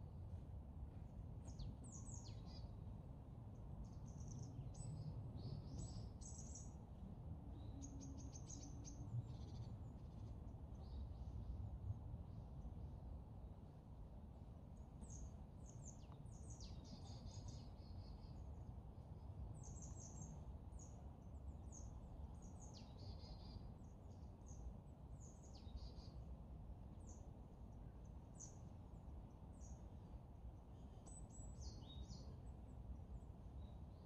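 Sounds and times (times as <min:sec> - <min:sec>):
songbirds calling: 0:19.6 - 0:26.3, 0:27.0 - 0:34.0.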